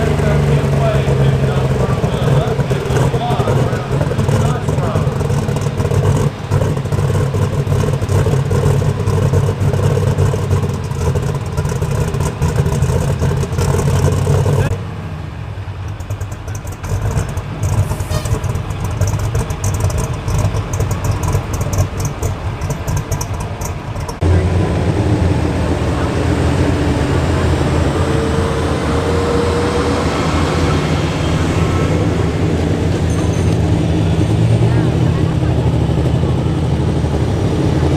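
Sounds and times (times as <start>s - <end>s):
tractor engine running hard: 0.0s - 37.9s.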